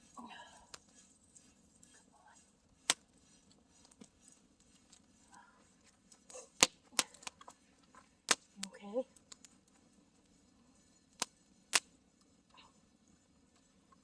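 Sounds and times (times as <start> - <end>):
campfire crackling: 0.0 - 14.0
sharp wood pops: 2.8 - 3.0, 6.6 - 7.4.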